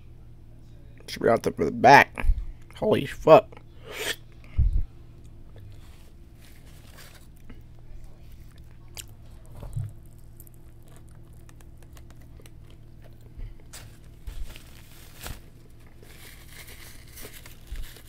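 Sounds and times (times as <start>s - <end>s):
faint low hum: 0.0s - 18.0s
person chewing food: 7.2s - 14.8s.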